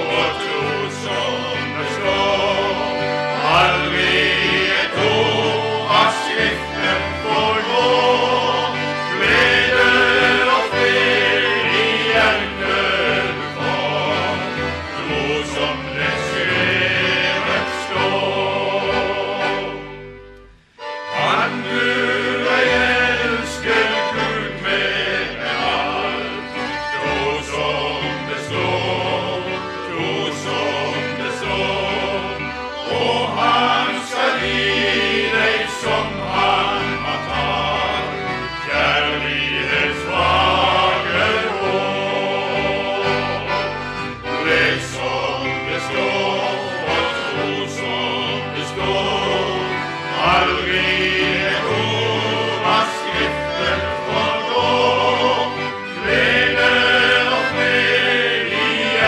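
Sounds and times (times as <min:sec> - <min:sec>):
choir singing gospel: 0:00.0 - 0:59.0
instrumental accompaniment: 0:00.0 - 0:59.0
sustained bass notes: 0:00.0 - 0:59.0.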